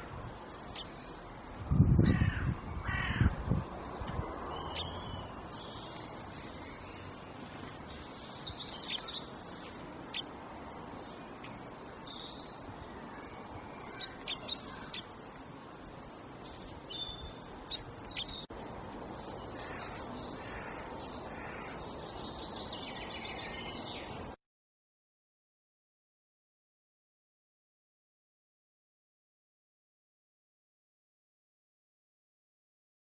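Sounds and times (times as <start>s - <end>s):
small birds chirping: 0.3s - 1.5s, 2.1s - 24.4s.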